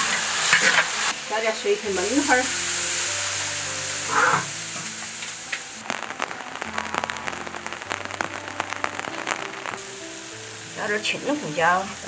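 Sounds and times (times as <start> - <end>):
sauce simmering with bubbling pops: 0.0 - 12.0
sauce sizzling in a wok: 0.0 - 12.0.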